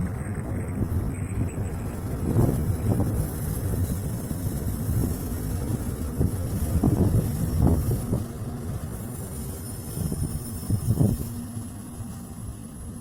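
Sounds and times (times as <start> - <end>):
wind buffeting microphone: 0.0 - 11.6
diesel locomotive rumbling: 0.0 - 13.0.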